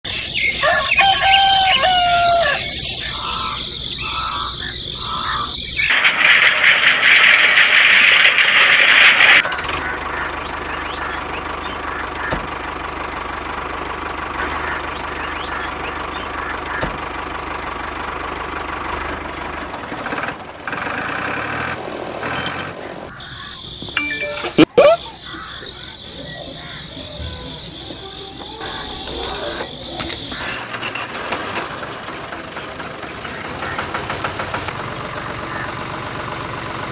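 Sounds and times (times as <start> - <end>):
rooster crowing: 0.4 - 5.5.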